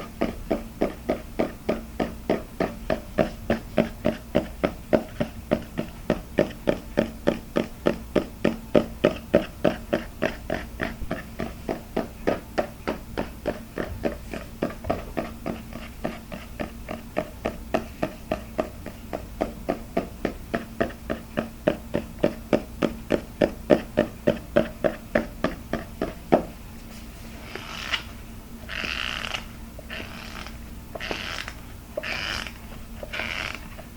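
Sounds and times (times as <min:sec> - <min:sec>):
faint steady hum: 0:00.0 - 0:33.9.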